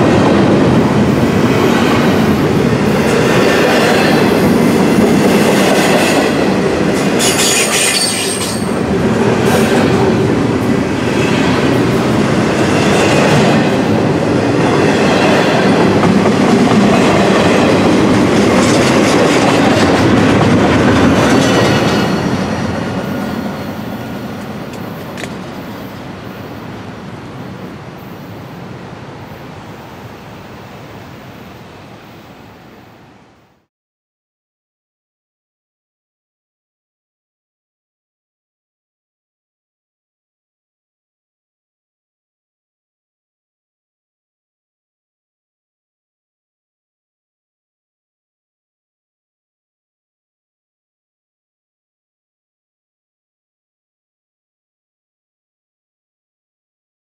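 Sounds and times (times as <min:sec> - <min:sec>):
freight train wheel-on-rail noise: 0:00.0 - 0:33.7
high-pitched wheel squeal: 0:07.2 - 0:08.8.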